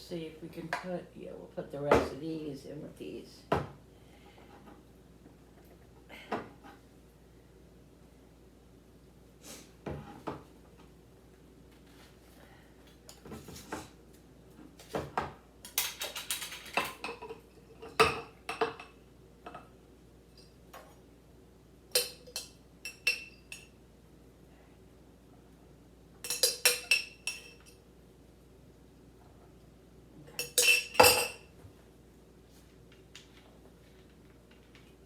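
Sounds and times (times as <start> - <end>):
glass jars clinking: 26.2 - 27.8, 30.4 - 31.5.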